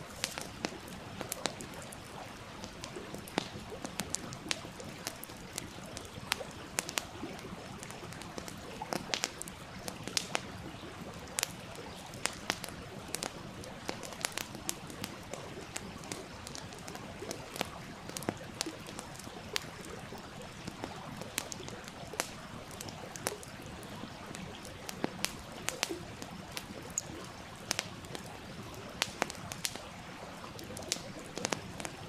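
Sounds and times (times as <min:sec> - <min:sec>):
campfire crackling and popping: 0:00.0 - 0:32.0
flowing stream: 0:00.0 - 0:32.0.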